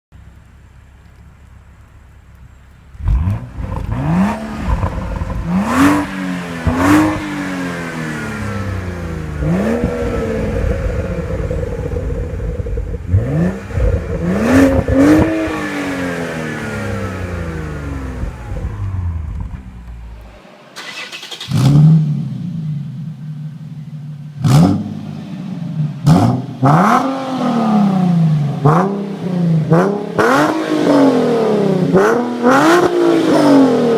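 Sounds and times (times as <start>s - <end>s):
car engine revving: 1.0s - 33.9s.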